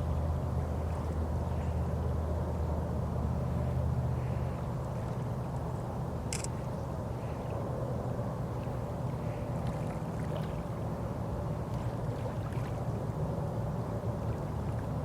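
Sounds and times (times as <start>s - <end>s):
boat motor drone: 0.0s - 15.0s.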